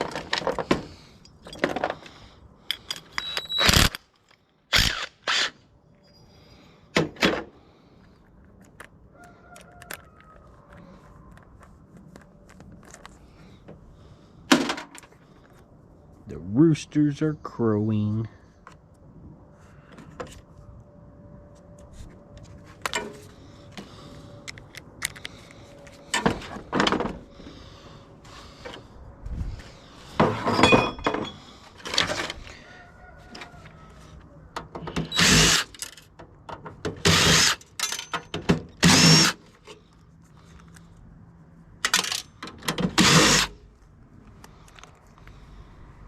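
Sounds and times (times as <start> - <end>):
power drill bursts: 3.2 - 3.9, 4.7 - 5.6, 35.0 - 35.8, 37.0 - 37.6, 38.8 - 39.4, 42.9 - 43.6.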